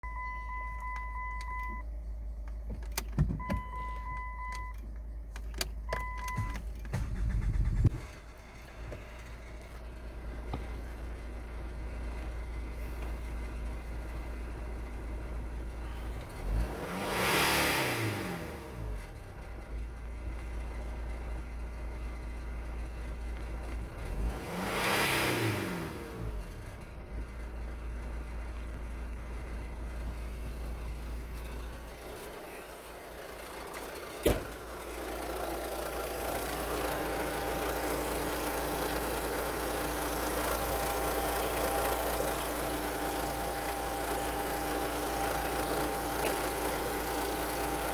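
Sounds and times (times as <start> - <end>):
dashboard warning beeps: 0.0 - 1.9, 2.7 - 7.1
diesel engine cranking and idling: 0.0 - 47.9.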